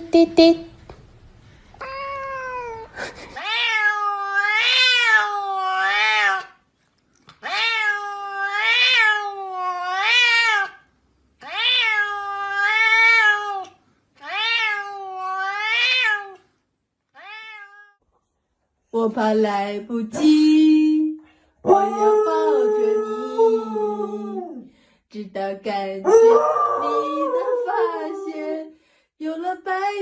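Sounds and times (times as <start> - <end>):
cat meowing: 1.8 - 6.6, 7.4 - 10.8, 11.4 - 16.5, 17.1 - 18.0.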